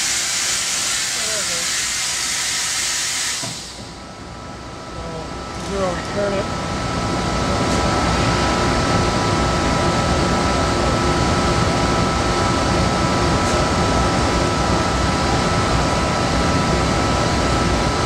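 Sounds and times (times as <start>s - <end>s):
machining center running: 0.0s - 18.0s.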